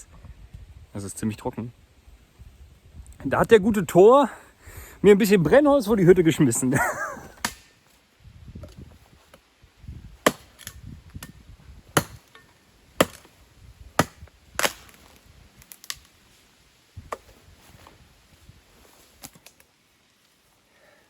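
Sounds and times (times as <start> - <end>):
dry wood snapping: 7.4 - 7.8, 12.0 - 13.4, 14.0 - 16.2, 19.2 - 19.8.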